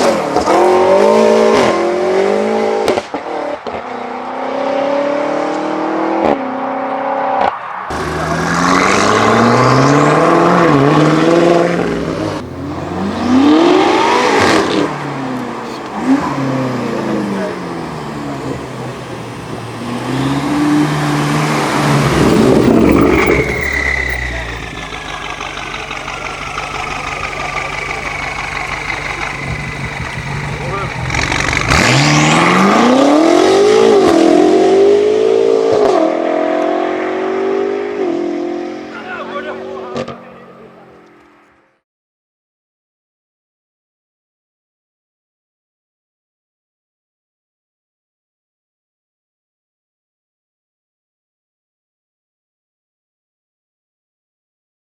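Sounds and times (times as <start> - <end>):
car engine revving past: 0.0 - 41.4
car engines accelerating: 0.0 - 41.6
exhaust crack at gear shift: 24.2 - 32.0.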